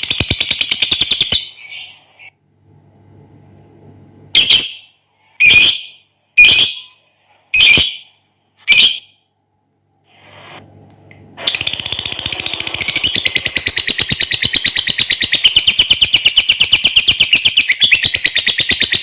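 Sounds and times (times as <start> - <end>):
lovebird chattering trill: 11.5 - 19.0.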